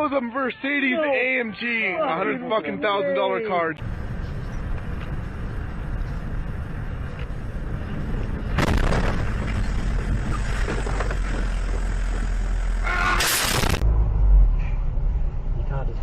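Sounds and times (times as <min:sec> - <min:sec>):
car rumbling on the road: 0:03.8 - 0:16.0
sudden loud noise: 0:08.5 - 0:11.2, 0:12.9 - 0:14.6.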